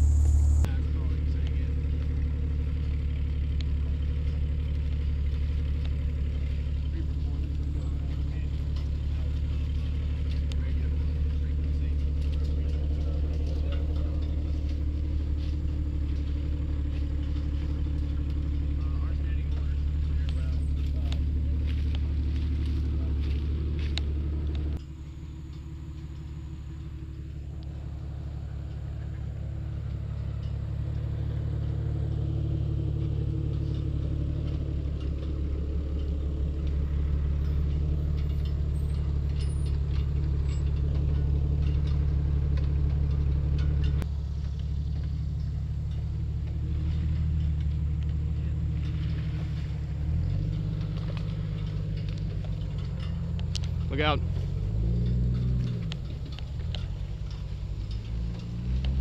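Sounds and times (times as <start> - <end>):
vehicle engine drone: 0.0 - 59.0.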